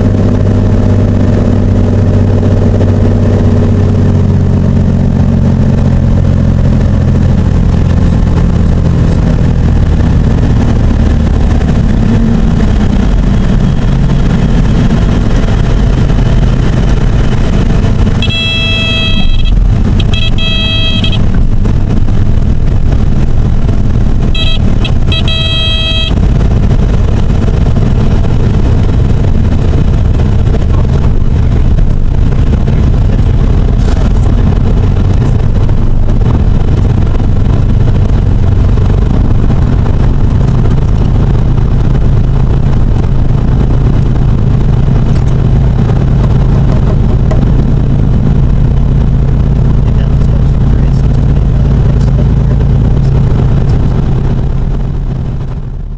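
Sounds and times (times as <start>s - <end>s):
airplane engine and propeller drone: 0.0s - 55.9s
high horn-like warning tone: 18.2s - 21.3s, 24.3s - 26.3s.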